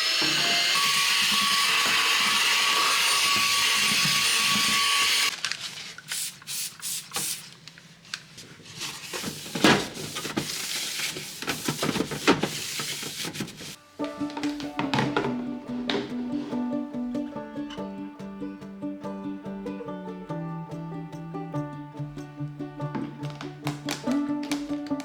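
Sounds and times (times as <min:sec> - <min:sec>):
small electric motor whining: 0:00.0 - 0:05.3
household items clicking and rubbing: 0:00.8 - 0:16.7, 0:22.9 - 0:25.0.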